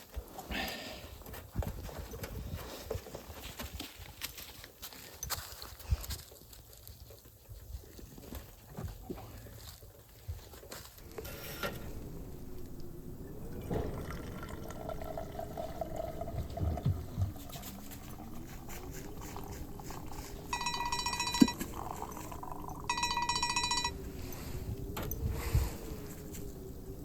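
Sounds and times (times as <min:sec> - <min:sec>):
liquid pouring into a cup: 0:13.6 - 0:23.0.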